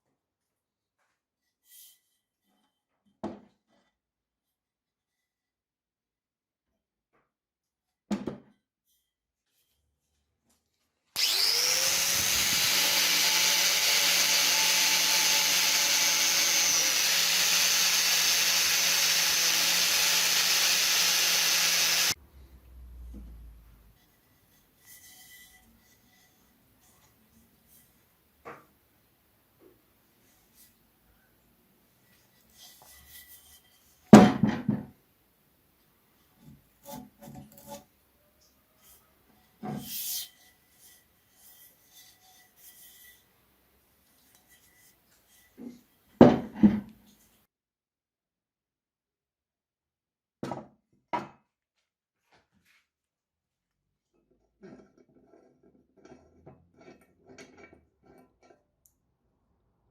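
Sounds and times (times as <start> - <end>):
power tool grinding: 11.2 - 22.2
metal scraping on workbench: 23.9 - 28.0, 32.1 - 34.1.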